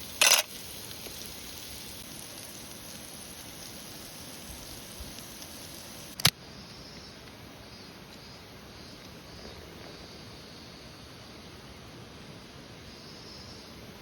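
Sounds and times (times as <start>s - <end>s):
sharp click: 6.2s - 6.4s.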